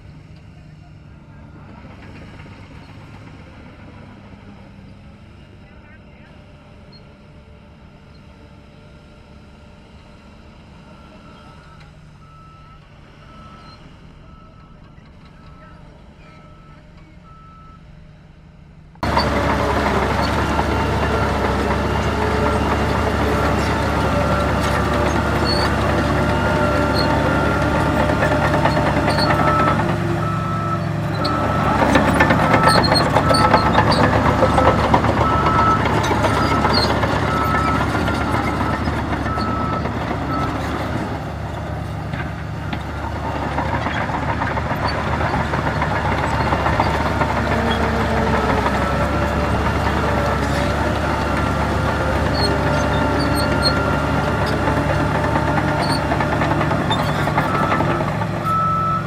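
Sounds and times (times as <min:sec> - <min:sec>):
heavy diesel machinery running: 0:00.0 - 0:59.0
reversing alarm beeps: 0:11.2 - 0:17.9, 0:23.2 - 0:41.1, 0:51.4 - 0:59.0.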